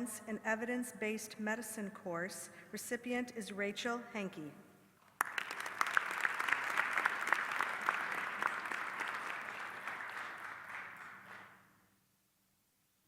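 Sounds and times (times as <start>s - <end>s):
audience applauding: 5.1s - 11.6s.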